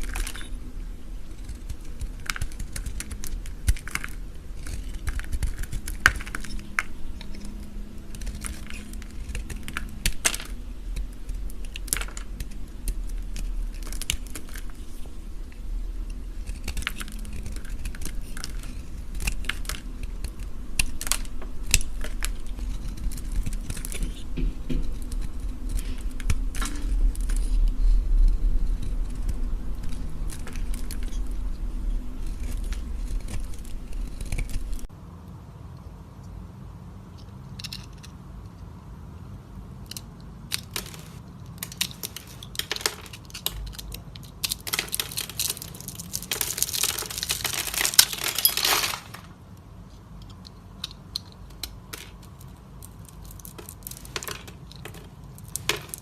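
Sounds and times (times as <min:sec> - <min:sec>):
knife carving soap: 0:00.0 - 0:15.2, 0:16.0 - 0:34.9.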